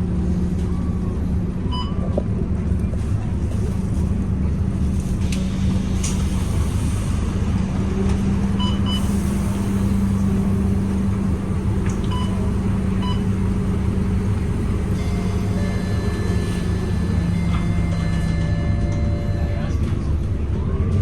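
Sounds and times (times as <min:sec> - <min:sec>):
bus engine rumbling: 0:00.0 - 0:21.0.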